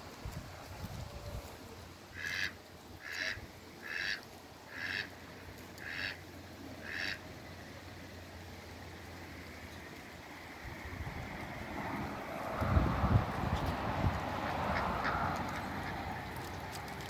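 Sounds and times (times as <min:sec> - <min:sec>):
duck quacking: 0:02.1 - 0:05.2, 0:05.8 - 0:06.2, 0:06.8 - 0:07.2, 0:14.7 - 0:16.0.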